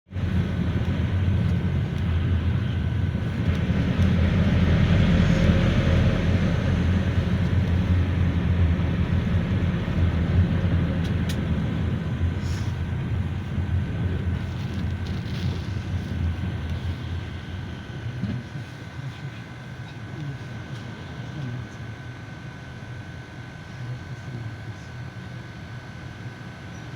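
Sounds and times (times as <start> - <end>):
road noise: 0.0 - 19.5
low engine drone: 0.0 - 26.8.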